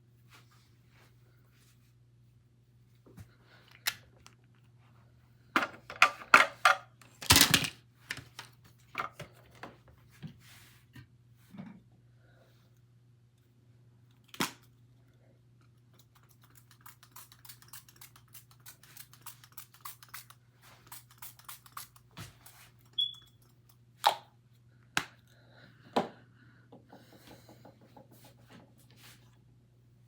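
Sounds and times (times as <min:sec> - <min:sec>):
brief high squeak: 0:23.0 - 0:23.4.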